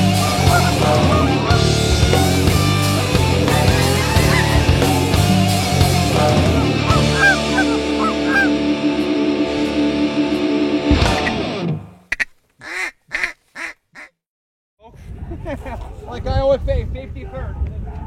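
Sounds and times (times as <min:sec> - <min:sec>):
rock music with guitar: 0:00.0 - 0:12.0
goose honks: 0:00.2 - 0:01.6, 0:03.5 - 0:04.9, 0:06.4 - 0:08.6.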